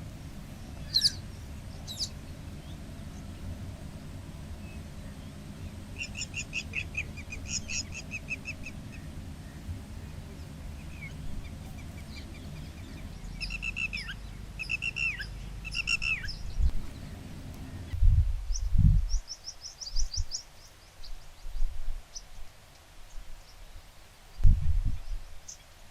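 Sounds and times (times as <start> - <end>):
steady low rumble: 0.0 - 19.3
bird chirping: 0.0 - 22.3.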